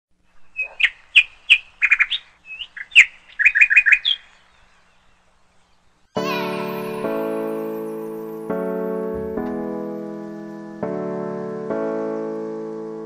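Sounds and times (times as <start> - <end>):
bird chirping: 0.2 - 10.8
piano music: 6.2 - 13.0.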